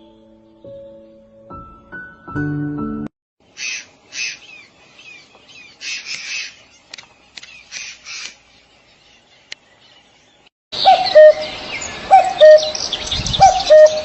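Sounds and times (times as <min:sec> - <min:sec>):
soft music: 0:00.0 - 0:03.1
birds calling in short bursts: 0:03.5 - 0:10.2
sharp clicks: 0:06.0 - 0:06.3, 0:06.9 - 0:08.4.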